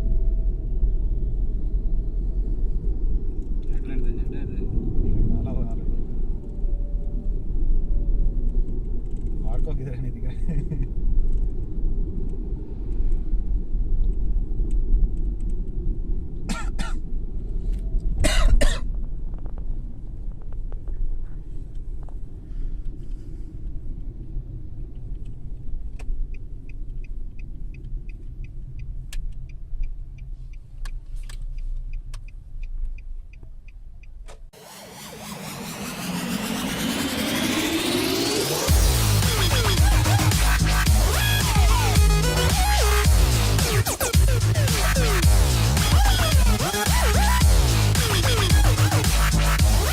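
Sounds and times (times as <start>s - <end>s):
car rumble: 0.0s - 49.9s
electronic music: 34.6s - 49.9s.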